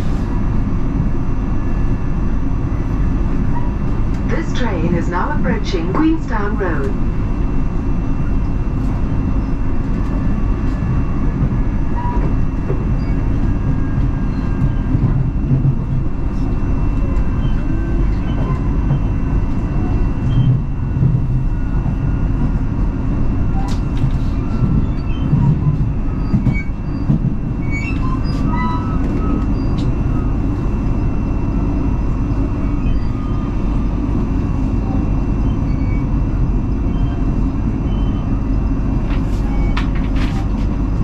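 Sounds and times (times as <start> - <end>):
train wheels rumbling on rails: 0.0 - 41.0
thin steady whine: 4.3 - 7.1.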